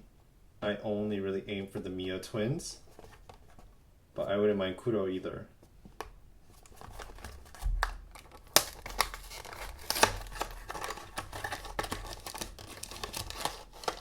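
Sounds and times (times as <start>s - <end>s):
plastic packaging crinkling: 6.5s - 14.0s
cardboard box tearing: 6.8s - 14.0s.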